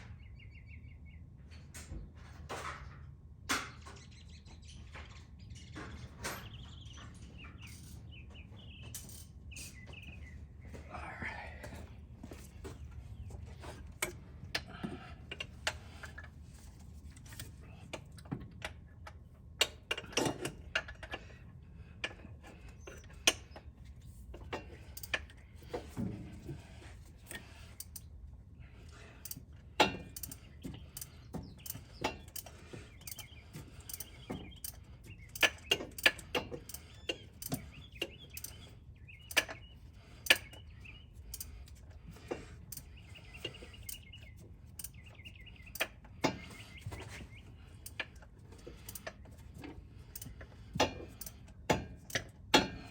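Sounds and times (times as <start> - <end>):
ratchet wrench clicking: 29.2 - 38.6.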